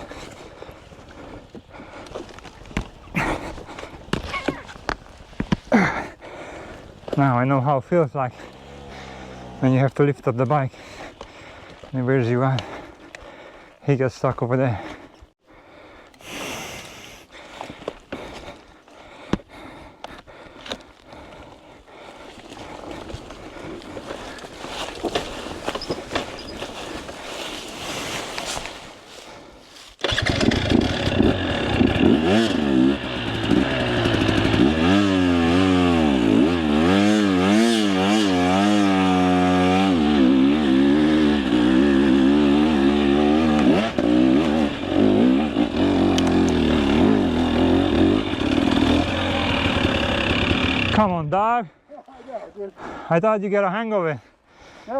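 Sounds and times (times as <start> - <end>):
dirt bike engine revving: 8.2 - 10.0, 30.0 - 51.2.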